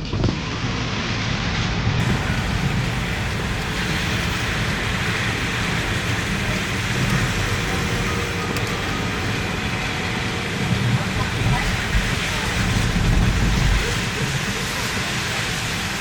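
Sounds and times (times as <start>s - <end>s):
low rumble of street traffic: 0.0s - 16.0s
steady rain hiss: 2.0s - 16.0s.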